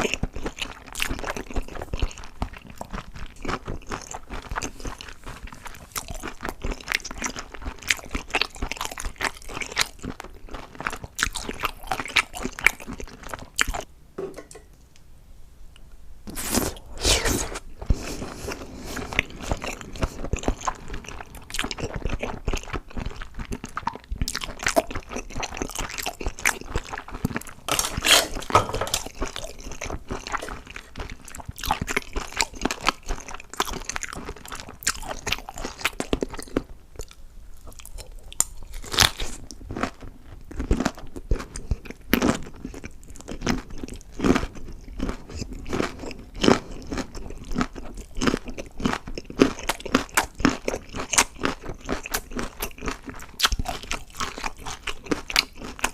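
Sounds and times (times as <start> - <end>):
person chewing crunchy food: 0.0 - 13.9, 16.3 - 55.9.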